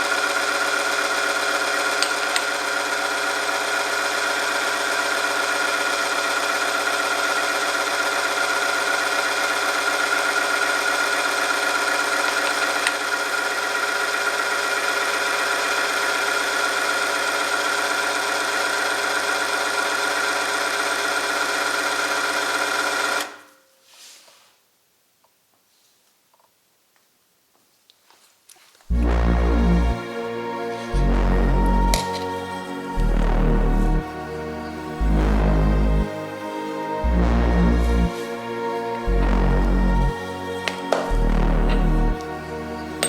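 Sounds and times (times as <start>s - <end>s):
high-pitched friction whine: 28.9s - 43.0s
motor hum: 28.9s - 43.0s.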